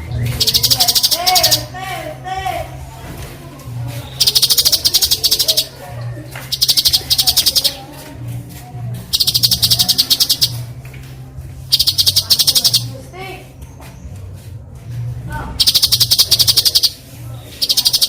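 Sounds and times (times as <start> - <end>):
faint bird chirps: 0.0 - 1.6, 4.1 - 5.7, 6.5 - 7.8, 9.1 - 10.6, 11.7 - 12.9, 15.6 - 18.0
bird rasping rattle calls: 0.4 - 1.7, 4.2 - 5.7, 6.5 - 7.8, 9.1 - 10.6, 11.7 - 12.9, 15.6 - 17.0, 17.6 - 18.0.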